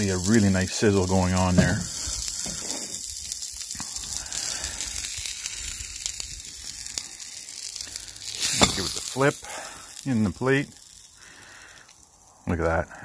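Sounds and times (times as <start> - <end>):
butter sizzling in a pan: 0.0 - 13.0
faint pops: 8.2 - 9.6.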